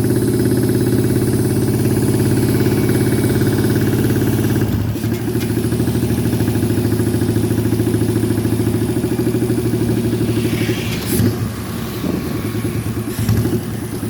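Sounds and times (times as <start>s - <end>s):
motorcycle engine idling: 0.0s - 10.5s, 11.2s - 14.0s.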